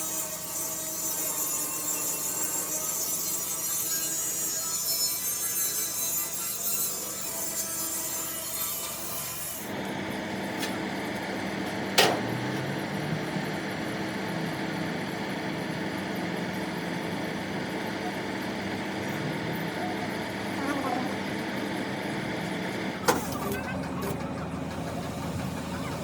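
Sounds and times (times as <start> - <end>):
tool rubbing and rasping: 0.0 - 9.8.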